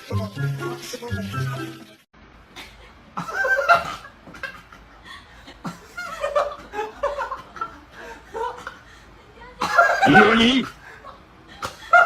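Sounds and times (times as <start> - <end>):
person laughing: 9.6 - 11.0.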